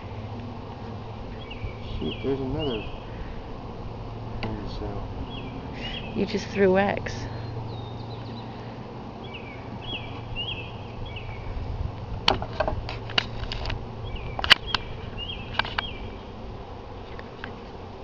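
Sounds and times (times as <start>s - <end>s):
bees buzzing: 0.0s - 18.0s
bird chirps: 1.3s - 3.2s, 5.2s - 11.6s, 14.0s - 16.3s.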